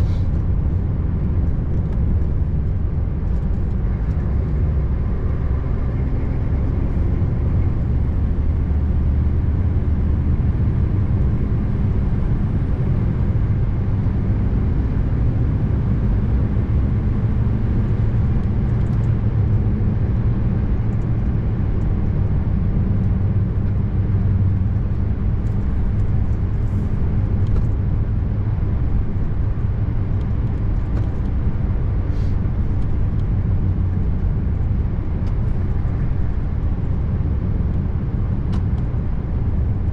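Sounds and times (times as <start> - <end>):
diesel truck engine drone: 0.0 - 39.9
tyre and road noise: 0.0 - 39.9.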